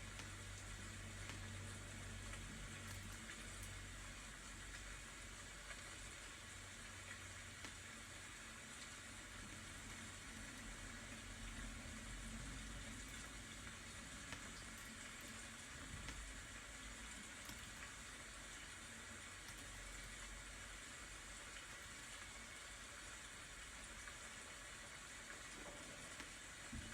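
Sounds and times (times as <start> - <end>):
rain falling: 0.0 - 26.9
faint ticks: 0.1 - 3.8, 14.2 - 16.3.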